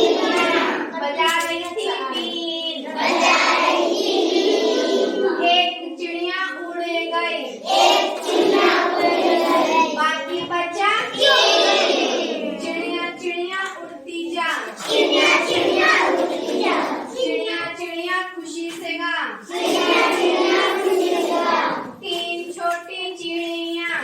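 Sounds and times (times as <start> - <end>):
children singing in unison: 0.0 - 1.1, 2.2 - 6.0, 7.3 - 13.2, 14.7 - 17.8, 19.4 - 22.0.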